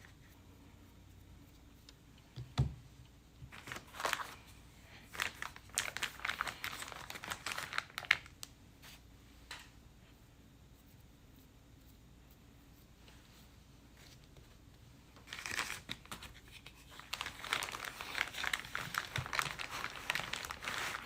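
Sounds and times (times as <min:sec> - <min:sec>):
plastic wrapping crinkling: 0:03.5 - 0:08.5, 0:15.2 - 0:21.0.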